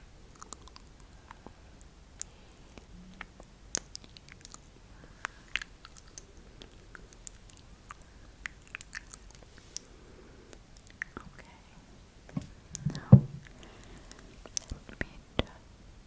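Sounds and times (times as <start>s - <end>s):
wet mouth clicks and smacks: 0.4s - 1.0s, 2.2s - 4.6s, 5.2s - 9.9s.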